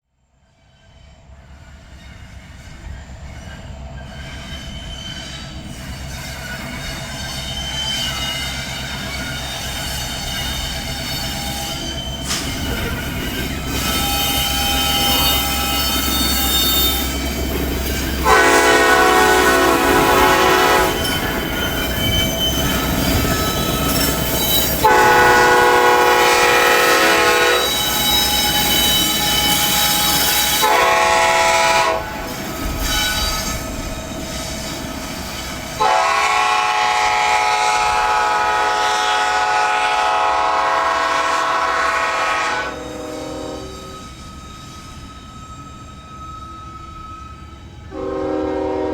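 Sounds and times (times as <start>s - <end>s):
diesel locomotive drone: 0.2s - 48.9s
wheels squealing on rails: 0.3s - 48.9s
locomotive horn blasts: 18.2s - 21.2s, 24.8s - 28.6s, 29.2s - 32.3s, 35.8s - 44.0s, 47.9s - 48.9s.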